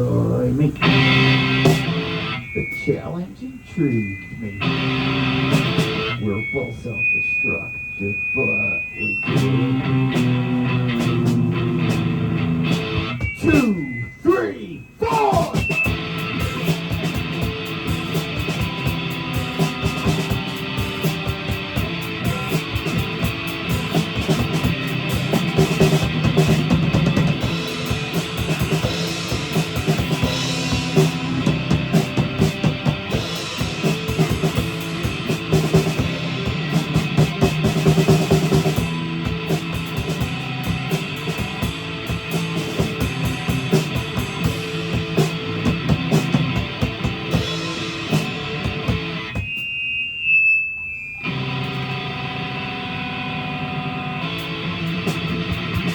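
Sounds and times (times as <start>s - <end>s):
live rock band playing: 0.0s - 2.9s, 4.0s - 7.1s, 8.2s - 14.1s, 15.0s - 49.8s, 51.2s - 55.9s
thin high tone: 0.1s - 11.1s, 12.6s - 16.8s, 47.4s - 54.0s.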